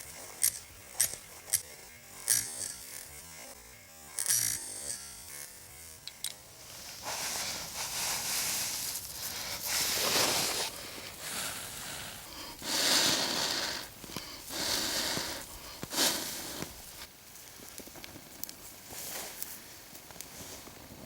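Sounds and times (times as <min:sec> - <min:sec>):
person blowing long breaths: 0:07.0 - 0:17.1.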